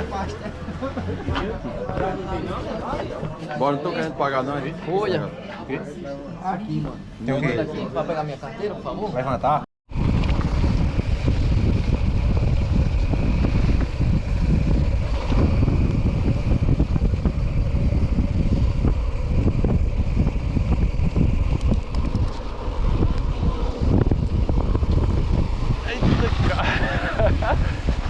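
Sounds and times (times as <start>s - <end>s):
wind buffeting microphone: 9.9s - 28.0s.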